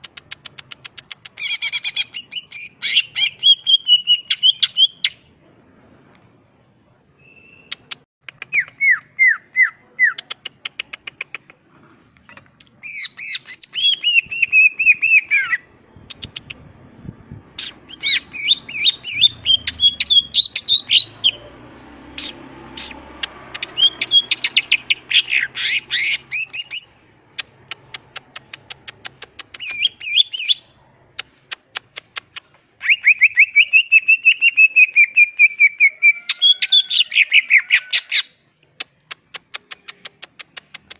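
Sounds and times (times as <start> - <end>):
bird singing chattering phrases: 17.6 - 40.9.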